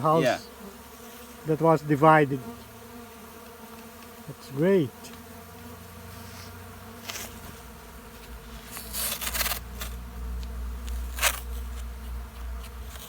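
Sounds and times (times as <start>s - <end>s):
bees buzzing: 0.0s - 13.0s
scraping crackles from handling: 6.1s - 7.6s, 8.2s - 10.0s, 10.8s - 13.0s.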